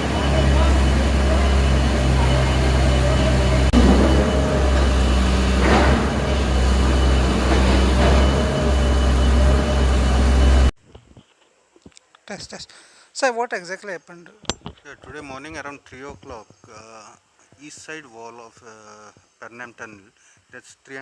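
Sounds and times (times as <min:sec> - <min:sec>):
heavy engine droning: 0:00.0 - 0:10.7.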